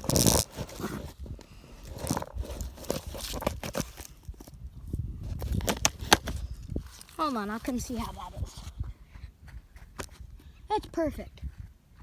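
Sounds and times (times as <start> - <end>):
crunching footsteps: 5.2 - 8.9.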